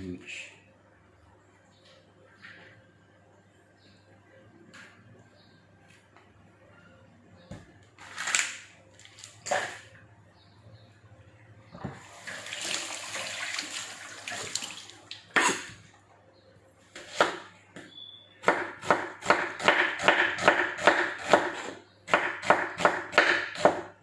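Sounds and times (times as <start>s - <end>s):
water running: 12.0s - 15.3s
knife slicing onion on board: 16.9s - 17.5s, 18.4s - 23.9s.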